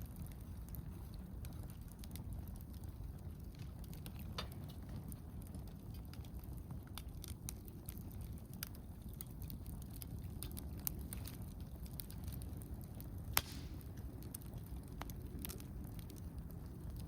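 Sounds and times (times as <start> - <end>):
campfire crackling and popping: 0.0 - 17.0
low steady fire rumble: 0.0 - 17.0.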